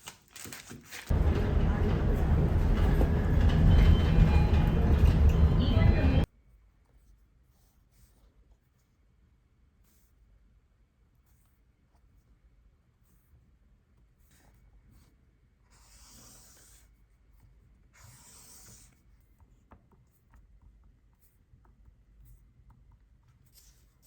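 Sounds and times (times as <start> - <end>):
faint scratching and rubbing: 1.1 - 9.0.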